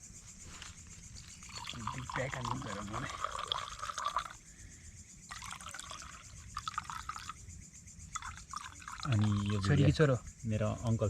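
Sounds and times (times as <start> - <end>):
drink pouring into glass: 1.4 - 4.4, 5.3 - 7.4, 8.1 - 9.9.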